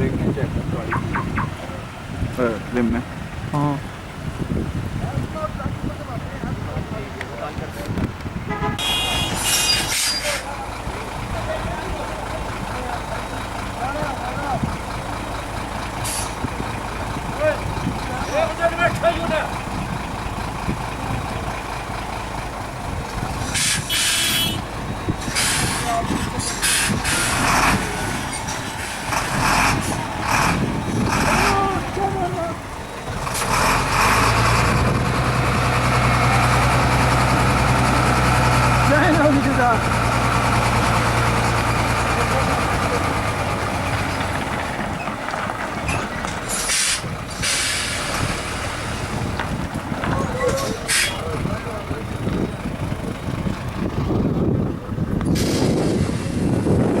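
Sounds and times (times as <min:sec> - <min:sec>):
voices: 0:00.0 - 0:56.6
heavy truck engine rumbling: 0:00.0 - 0:57.0
sharp air hisses: 0:46.5 - 0:48.2.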